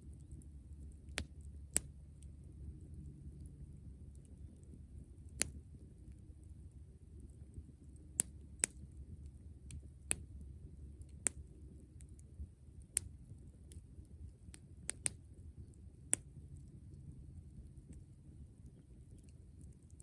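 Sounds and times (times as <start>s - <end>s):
low steady rumble: 0.0s - 20.0s
campfire crackling pops: 5.3s - 5.6s, 8.2s - 8.8s, 11.1s - 11.5s, 14.5s - 15.2s.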